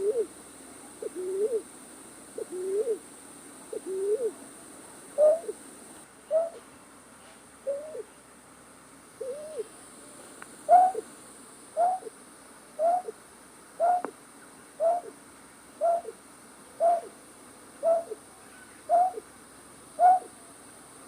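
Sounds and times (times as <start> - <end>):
night bird hooting: 0.0 - 0.4, 1.0 - 1.7, 2.4 - 3.0, 3.7 - 4.4, 5.2 - 5.6, 6.3 - 6.6, 7.6 - 8.1, 9.2 - 9.7, 10.7 - 11.1, 11.8 - 12.2, 12.8 - 13.2, 13.8 - 14.1, 14.8 - 15.2, 15.8 - 16.2, 16.8 - 17.2, 17.8 - 18.2, 18.8 - 19.3, 20.0 - 20.4.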